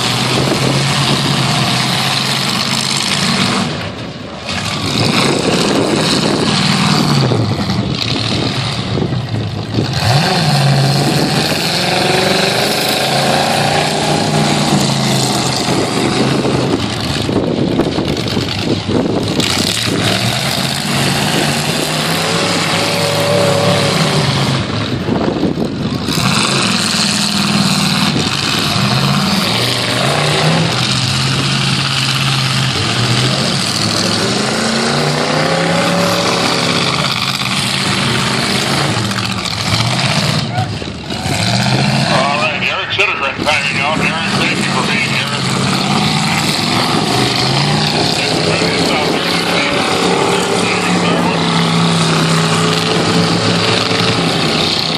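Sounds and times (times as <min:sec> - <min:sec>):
truck engines revving: 0:00.0 - 0:54.9
noisy din: 0:19.4 - 0:25.1, 0:27.5 - 0:54.9.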